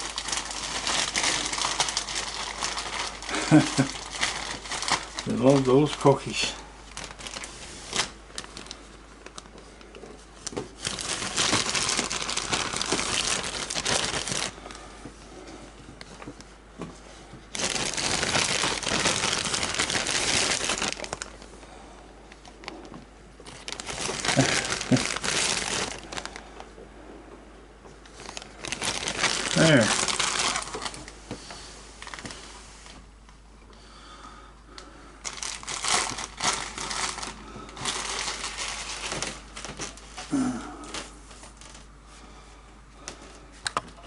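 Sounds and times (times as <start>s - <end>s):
plastic packaging crinkling: 0.0s - 14.9s, 17.5s - 21.6s, 22.3s - 26.7s, 28.1s - 33.0s, 35.2s - 41.9s.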